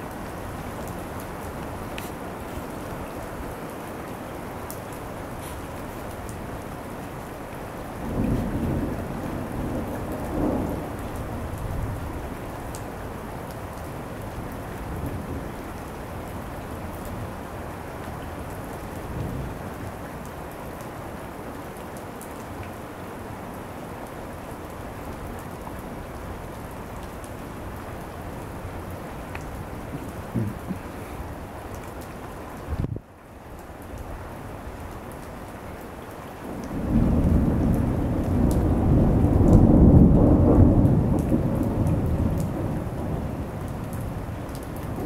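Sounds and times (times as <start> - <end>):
steady rain falling: 0.0 - 45.0
thunder rumbling: 8.0 - 12.3, 36.6 - 45.0.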